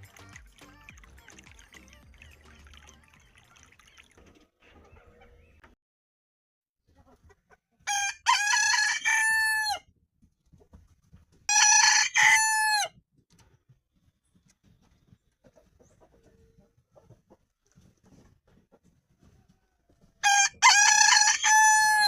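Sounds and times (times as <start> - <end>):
rooster crowing: 7.9 - 9.8, 11.5 - 12.9, 20.2 - 22.0.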